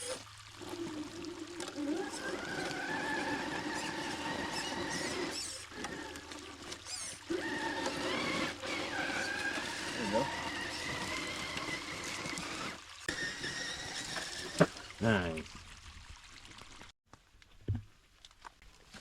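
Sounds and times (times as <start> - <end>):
electric motor and gears whining: 0.0 - 15.0
water trickling: 0.0 - 16.9.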